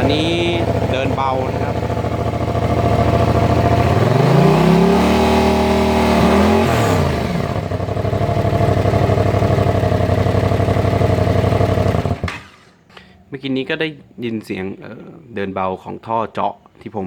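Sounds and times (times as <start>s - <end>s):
motorcycle engine idling and revving: 0.0s - 12.7s.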